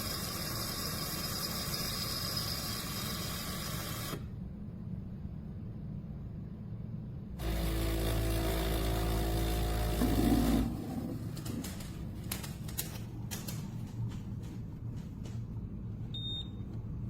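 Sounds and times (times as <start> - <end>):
espresso machine buzzing: 0.0 - 4.2, 7.4 - 10.9.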